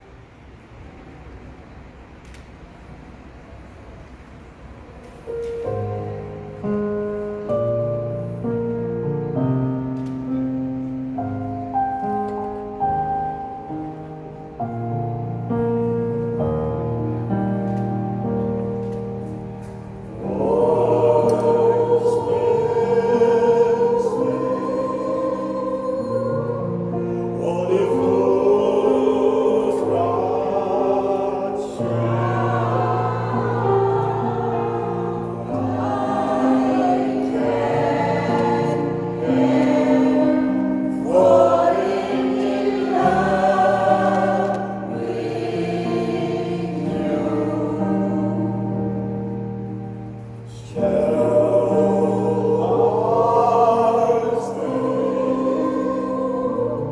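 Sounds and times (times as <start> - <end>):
piano accompaniment: 4.9 - 56.9
choir singing: 11.7 - 56.9.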